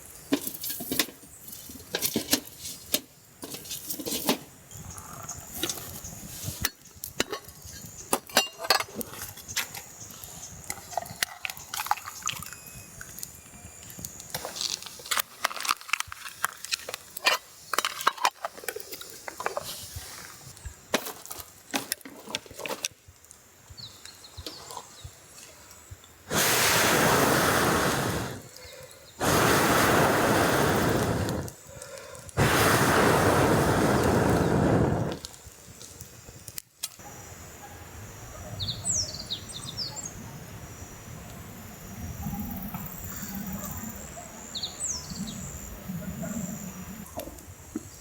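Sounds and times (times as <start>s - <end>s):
air blowing through pipe into fire: 26.2s - 36.5s.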